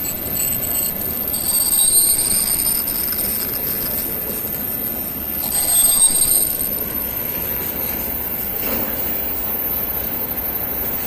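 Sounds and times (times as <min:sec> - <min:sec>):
train wheels squealing on rails: 0:00.0 - 0:11.0
passing train rumbling: 0:02.6 - 0:11.0.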